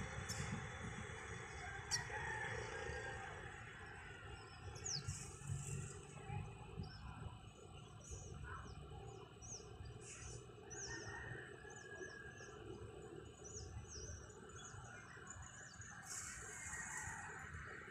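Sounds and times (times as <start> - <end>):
low background rumble: 0.0 - 16.0
small birds chirping: 3.6 - 11.2.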